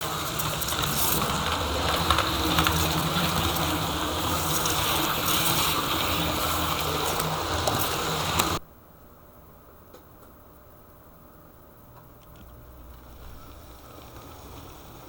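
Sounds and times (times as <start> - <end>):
model train motor hum and wheel rumble: 0.0 - 8.6, 12.1 - 15.0.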